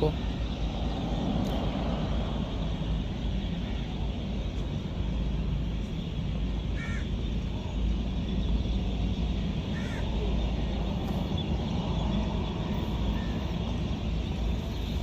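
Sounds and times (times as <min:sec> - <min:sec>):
low outdoor rumble: 0:00.0 - 0:15.0
bird call: 0:09.3 - 0:15.0.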